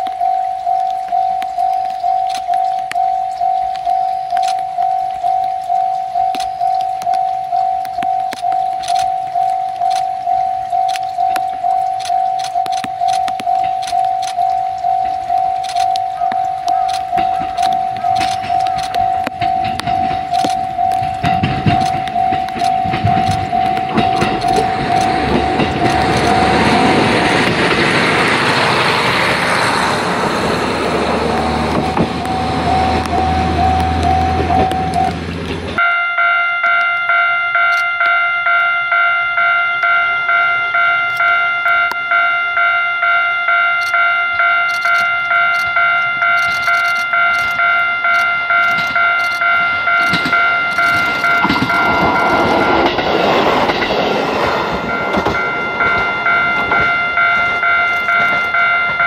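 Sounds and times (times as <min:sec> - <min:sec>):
diesel railcar engine: 0:00.0 - 0:59.0
level crossing warning bell: 0:00.0 - 0:59.0
railcar passing: 0:00.0 - 0:59.0.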